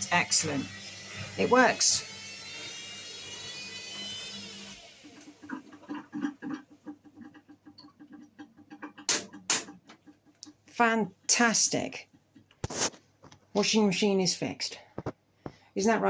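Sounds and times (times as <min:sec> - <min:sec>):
washing machine motor whine: 0:00.0 - 0:06.0.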